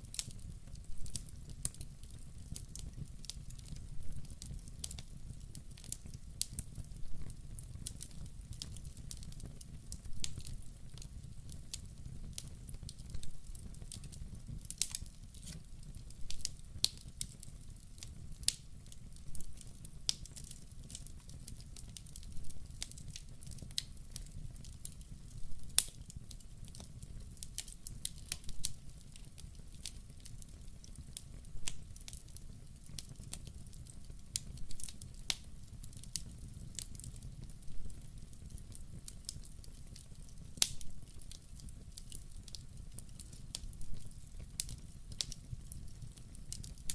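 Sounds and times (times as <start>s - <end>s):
wood fire crackling: 0.0s - 46.9s
fire pops: 25.7s - 30.2s, 40.0s - 46.9s.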